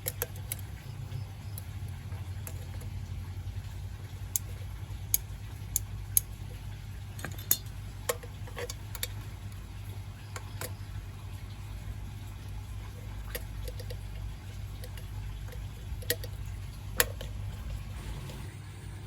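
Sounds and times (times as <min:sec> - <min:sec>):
small hard objects clicking: 0:00.0 - 0:03.0
low steady hum: 0:00.0 - 0:19.0.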